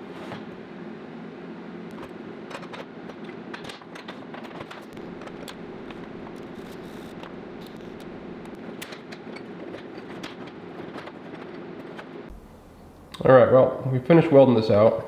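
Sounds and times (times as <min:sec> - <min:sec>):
welder buzzing: 0:04.9 - 0:08.8, 0:12.3 - 0:13.2.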